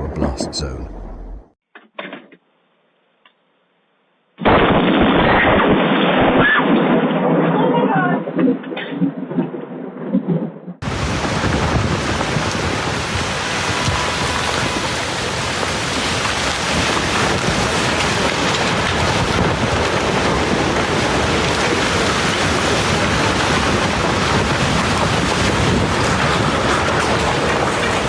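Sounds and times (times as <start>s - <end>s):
heavy rain: 10.8s - 28.0s.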